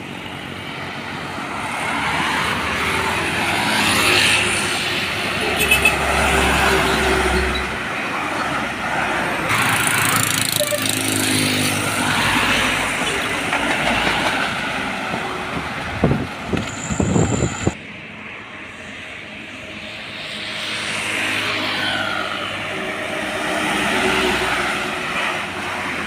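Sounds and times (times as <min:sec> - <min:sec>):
heavy truck passing: 0:01.2 - 0:17.8.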